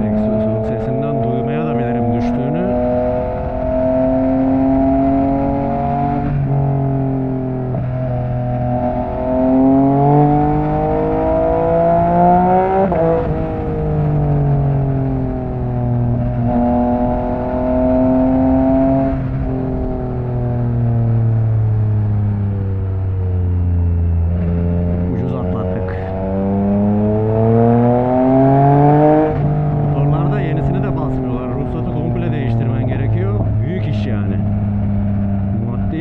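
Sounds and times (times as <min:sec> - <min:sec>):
motorcycle engine accelerating: 0:00.0 - 0:36.0.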